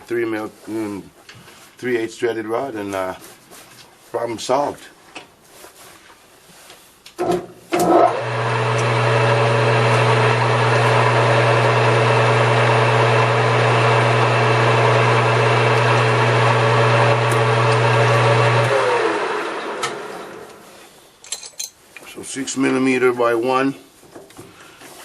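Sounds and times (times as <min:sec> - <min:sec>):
lathe motor humming and whining: 0:07.8 - 0:20.6.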